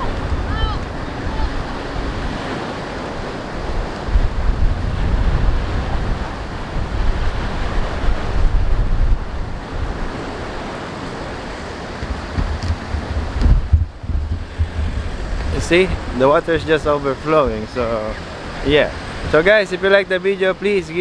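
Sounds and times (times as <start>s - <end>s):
sea waves washing over shore: 0.0s - 21.0s
wind buffeting microphone: 0.0s - 21.0s.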